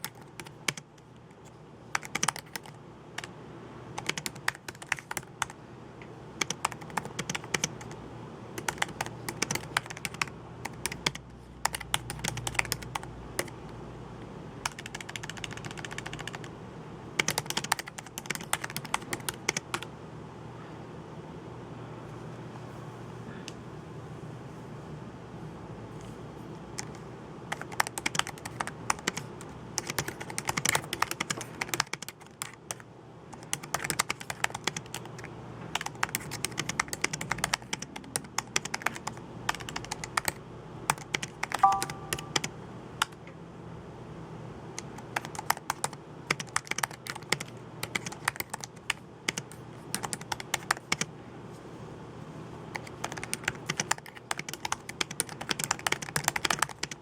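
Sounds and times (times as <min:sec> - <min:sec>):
computer keyboard typing: 0:00.0 - 0:03.3, 0:04.0 - 0:05.6, 0:06.4 - 0:08.0, 0:08.6 - 0:13.6, 0:14.6 - 0:16.5, 0:17.2 - 0:19.9, 0:26.8 - 0:43.2, 0:44.8 - 0:51.1, 0:52.7 - 0:57.0
brief beep: 0:41.6 - 0:42.4.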